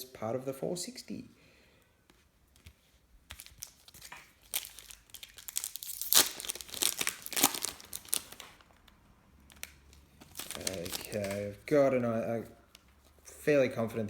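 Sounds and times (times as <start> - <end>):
wrapper tearing and crinkling: 3.3 - 11.6.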